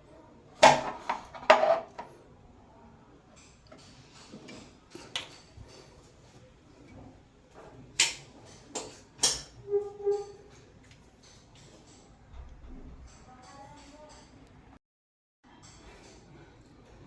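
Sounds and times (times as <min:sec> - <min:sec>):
short squeak: 0:09.6 - 0:10.5.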